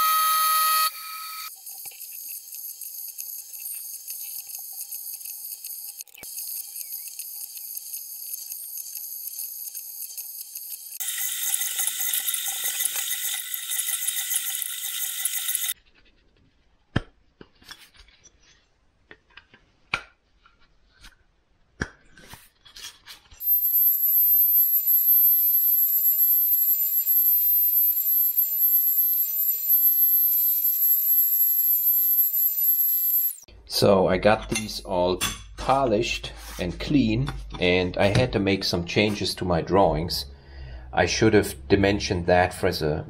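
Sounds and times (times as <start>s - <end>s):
drill spindle whine: 0.0s - 15.8s, 23.4s - 33.5s.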